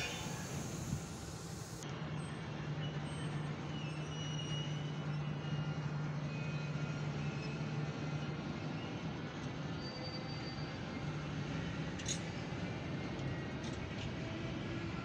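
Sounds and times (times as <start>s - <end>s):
electric locomotive humming: 0.0s - 1.8s
train wheels rolling: 0.0s - 1.8s.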